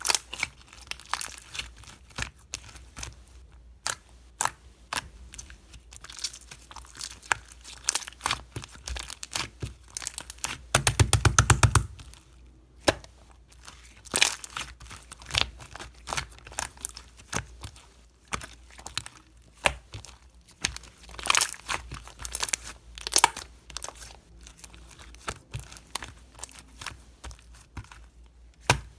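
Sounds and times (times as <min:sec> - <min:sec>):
slime squishing and stretching: 0:00.0 - 0:03.2, 0:13.5 - 0:28.9
air popping in slime: 0:10.8 - 0:12.1.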